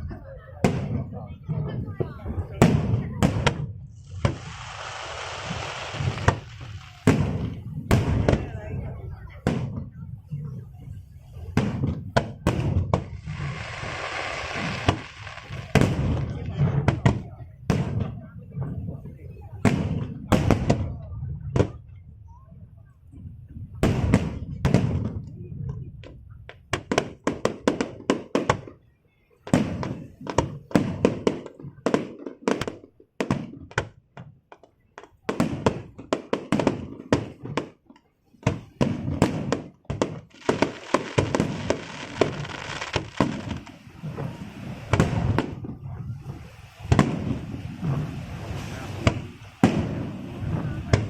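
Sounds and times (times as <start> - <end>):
fireworks crackling: 0.1 - 20.8, 34.6 - 51.0
fireworks bursting: 0.1 - 21.9, 29.4 - 51.0.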